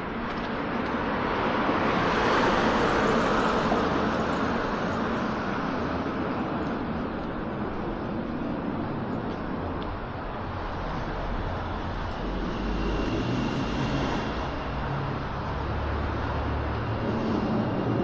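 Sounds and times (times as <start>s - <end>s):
steady traffic hum: 0.0s - 18.0s.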